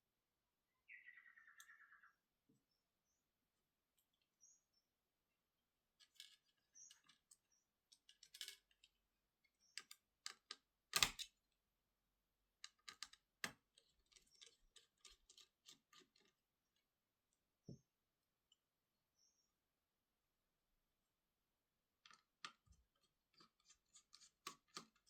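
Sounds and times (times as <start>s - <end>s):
small tools clicking and tapping: 6.0s - 9.0s, 9.6s - 11.3s, 12.6s - 16.8s, 22.0s - 25.0s.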